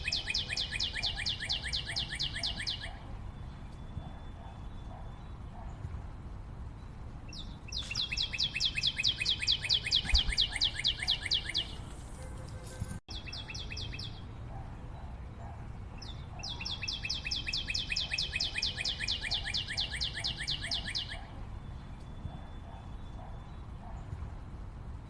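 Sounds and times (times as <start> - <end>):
bird calling sharp notes: 7.7 - 11.9.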